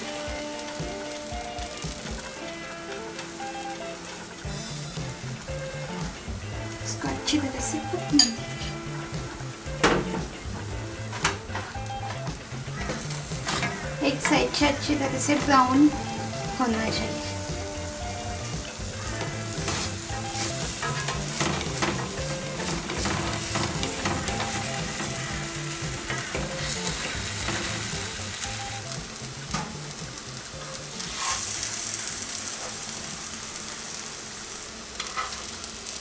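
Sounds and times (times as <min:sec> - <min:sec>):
batter sizzling in a pan: 0:00.0 - 0:36.0.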